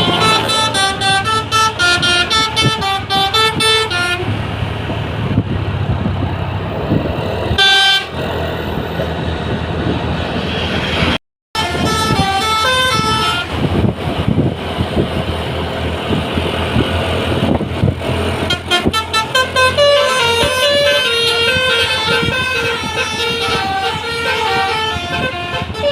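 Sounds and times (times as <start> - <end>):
single horn blast: 0.0 - 4.4, 7.6 - 8.2, 11.6 - 13.6, 18.4 - 25.9
musical bus horn tune: 0.0 - 4.5, 7.5 - 8.2, 11.5 - 13.9, 18.3 - 25.9
bus engine and tyre noise: 0.0 - 25.9.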